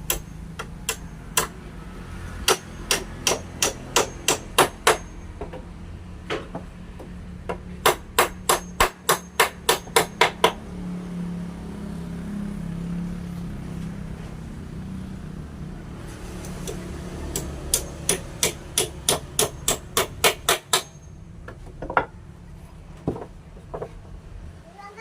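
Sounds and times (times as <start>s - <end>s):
hammer striking wood: 0.0s - 1.6s, 2.4s - 10.6s, 16.6s - 22.2s.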